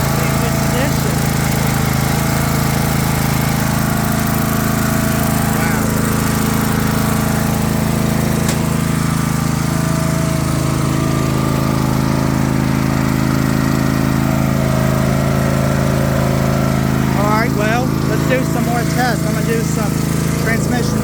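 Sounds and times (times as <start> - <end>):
riding lawn mower engine running: 0.0 - 21.0.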